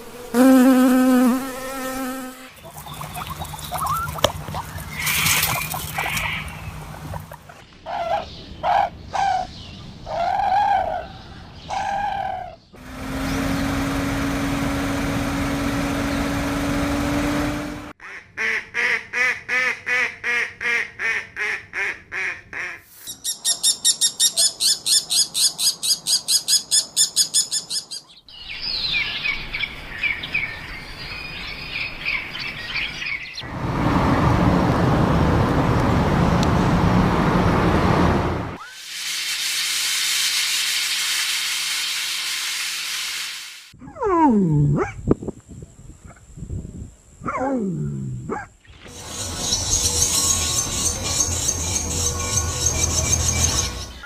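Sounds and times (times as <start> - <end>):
bird chirping: 2.5 - 10.0, 23.1 - 33.4, 48.6 - 54.0.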